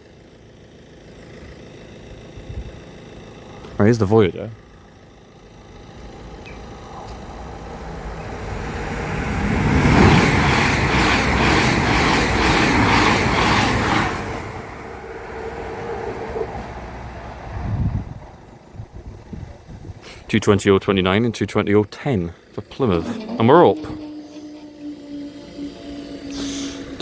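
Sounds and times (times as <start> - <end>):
wheels clattering over rails: 0.0 - 20.0, 21.0 - 27.0
train passing at speed: 4.6 - 19.8, 22.0 - 27.0.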